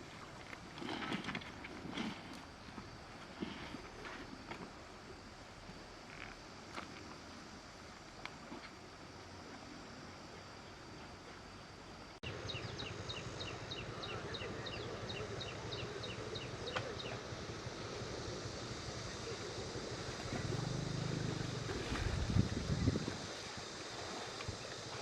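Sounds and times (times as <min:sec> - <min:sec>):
short low hum: 0:12.2 - 0:23.2
wind noise: 0:21.4 - 0:23.7.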